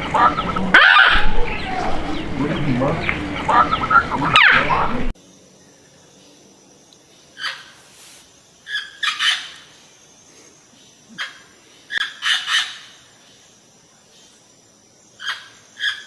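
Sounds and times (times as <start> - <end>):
parrot squawking: 0.1 - 2.0.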